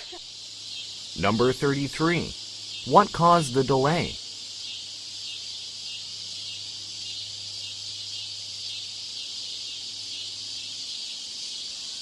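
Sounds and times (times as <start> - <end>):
high-pitched hiss: 0.0 - 12.0.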